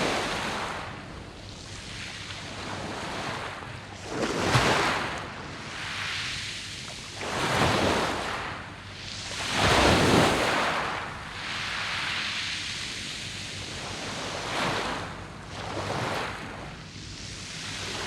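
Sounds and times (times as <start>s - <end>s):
sea waves on pebble beach: 1.7s - 8.6s, 9.2s - 13.0s, 13.6s - 16.4s.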